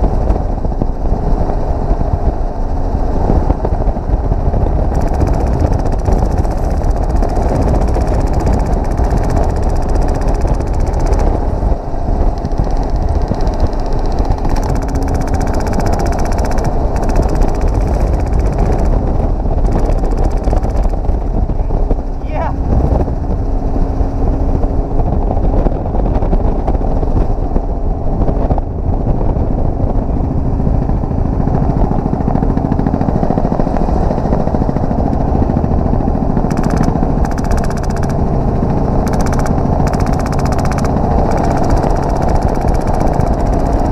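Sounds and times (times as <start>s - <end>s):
helicopter engine and rotor: 0.0s - 43.9s
wind buffeting: 0.0s - 43.9s
rapid full-auto airsoft gun rattle: 4.8s - 11.6s, 12.2s - 21.2s, 36.5s - 43.9s.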